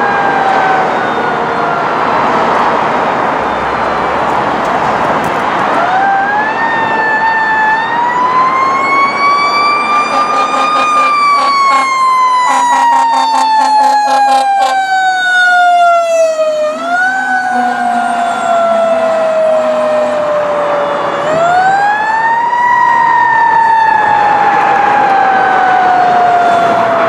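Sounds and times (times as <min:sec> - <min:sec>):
fire engine siren wailing: 0:00.0 - 0:27.0
low horn-like tone: 0:09.9 - 0:14.9, 0:16.0 - 0:20.4.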